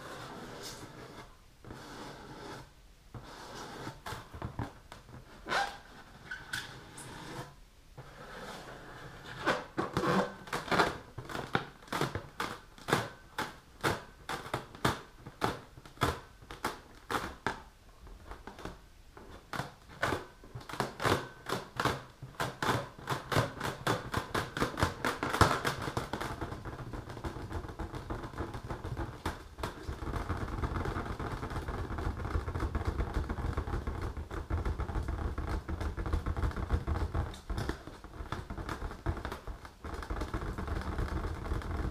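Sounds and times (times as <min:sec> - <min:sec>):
fingernails tapping on balloon: 0:19.5 - 0:41.9.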